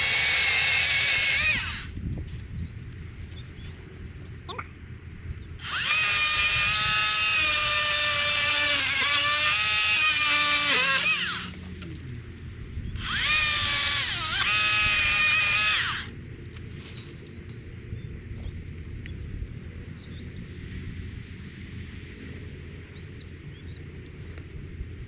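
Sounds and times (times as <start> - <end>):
power saw cutting wood: 0.0 - 1.9, 5.6 - 11.7, 13.0 - 16.1.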